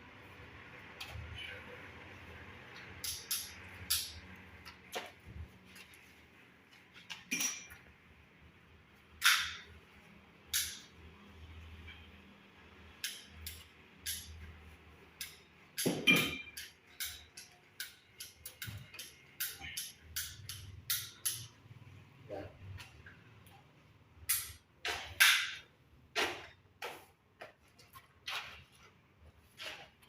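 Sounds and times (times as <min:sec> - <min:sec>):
hand tools clicking and knocking: 0:02.7 - 0:05.2, 0:09.2 - 0:09.7, 0:10.5 - 0:11.0, 0:13.0 - 0:14.5, 0:15.2 - 0:21.7, 0:24.3 - 0:28.7.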